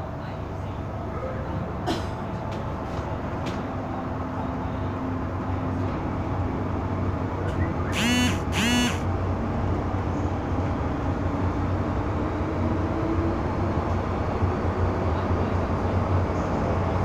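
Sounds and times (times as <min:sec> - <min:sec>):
train carriage rumble and hum: 0:00.0 - 0:17.0
brief pitched sounds: 0:08.0 - 0:09.0
faint motor whine: 0:08.0 - 0:09.0.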